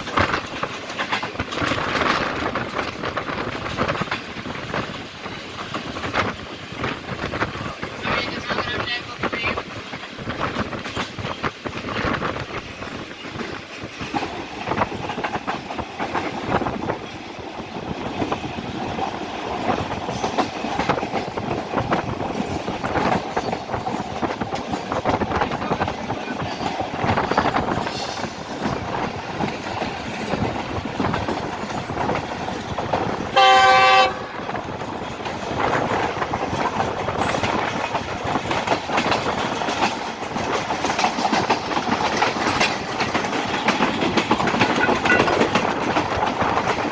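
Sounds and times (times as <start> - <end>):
train wheels clickety-clack: 0.0 - 46.9
train horn blast: 33.3 - 34.5, 44.8 - 45.4.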